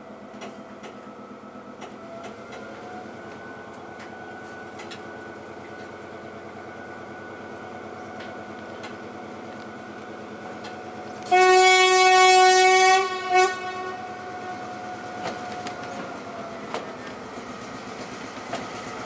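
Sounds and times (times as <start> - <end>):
diesel train running: 0.0 - 19.0.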